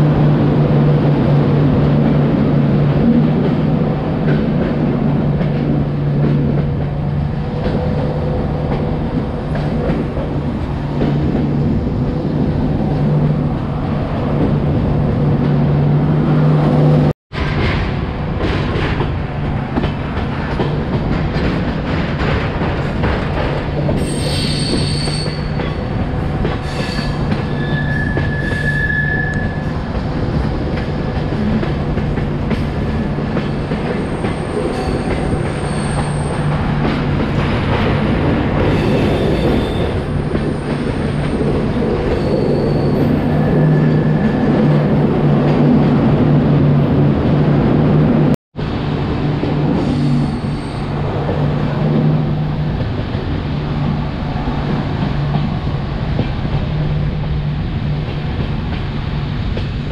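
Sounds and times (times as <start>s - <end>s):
train rumble and hum: 0.0s - 59.9s
high-pitched wheel squeal: 24.0s - 25.6s, 26.7s - 29.7s, 42.1s - 44.4s.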